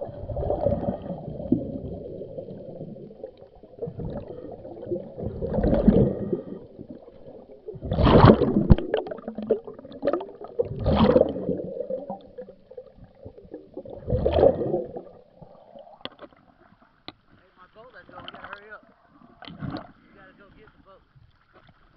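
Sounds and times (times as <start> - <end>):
diver's bubbles gurgling: 0.0 - 16.8.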